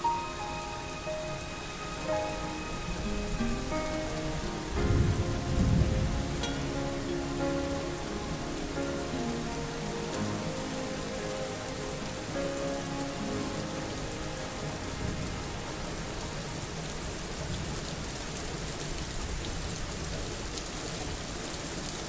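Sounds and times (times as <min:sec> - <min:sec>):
song held notes: 0:00.0 - 0:17.2
rain falling: 0:00.0 - 0:22.0.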